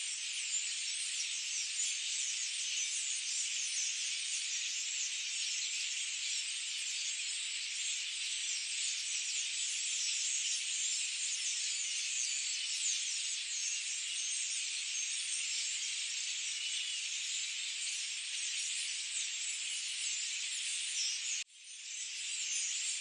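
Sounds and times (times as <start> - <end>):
many birds chirping: 0.0 - 23.0.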